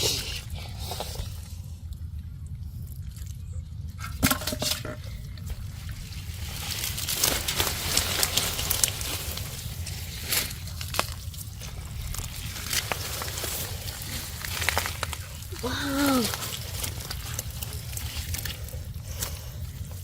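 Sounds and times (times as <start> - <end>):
water dripping: 1.3 - 20.0.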